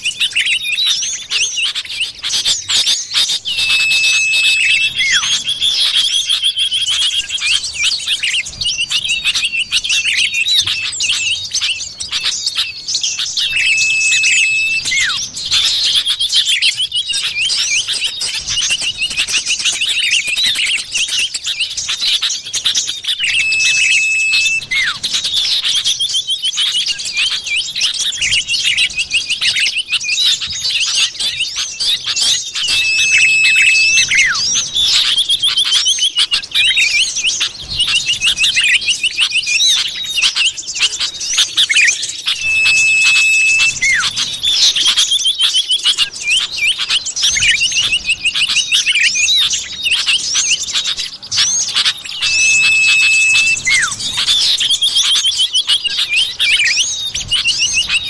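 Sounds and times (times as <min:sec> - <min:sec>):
bird chirping and trilling: 0:00.0 - 0:58.0
level whistle: 0:03.2 - 0:06.2, 0:13.4 - 0:15.3, 0:23.1 - 0:25.1, 0:32.6 - 0:35.3, 0:41.7 - 0:45.0, 0:52.0 - 0:55.2.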